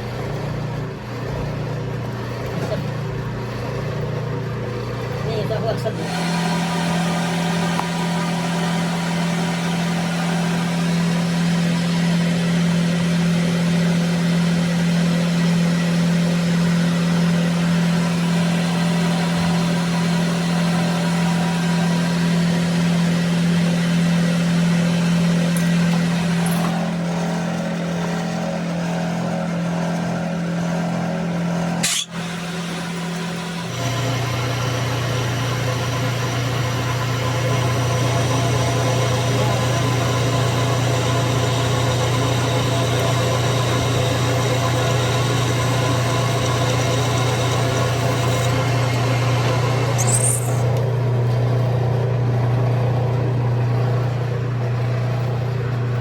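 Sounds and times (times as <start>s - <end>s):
sharp click: 31.8s - 32.2s.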